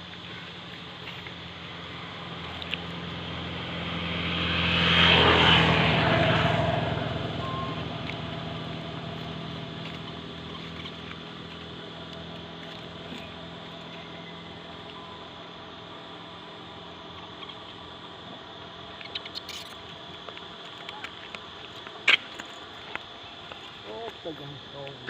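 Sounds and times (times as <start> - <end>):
vehicle passing by: 1.1 - 14.9.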